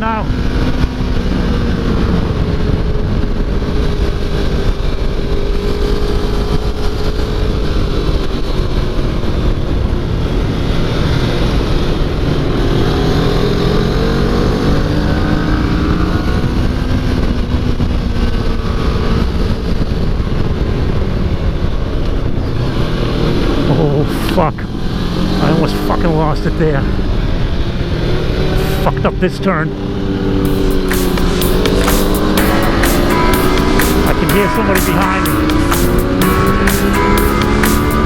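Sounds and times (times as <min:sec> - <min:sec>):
low rush of wind: 0:00.0 - 0:23.8
motorcycle engine revving: 0:30.0 - 0:38.0.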